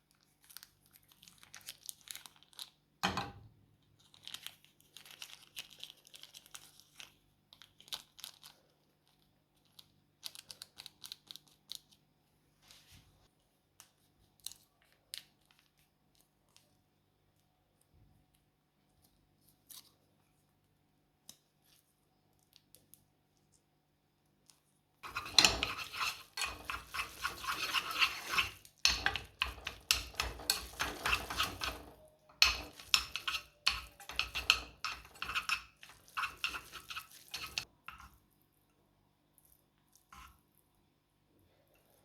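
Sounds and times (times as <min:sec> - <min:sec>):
rapid brushing strokes: 0:25.0 - 0:37.6.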